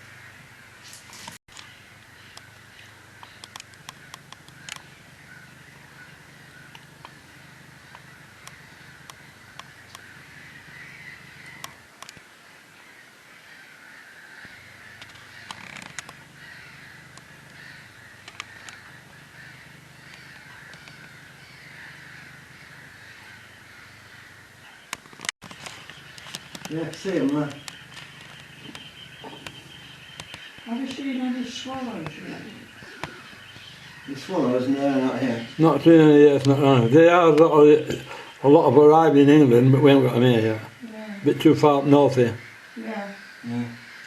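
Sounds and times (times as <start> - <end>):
wild birds chorus: 0.0 - 44.0
sharp clicks: 3.2 - 4.9, 18.2 - 18.9, 24.9 - 31.1.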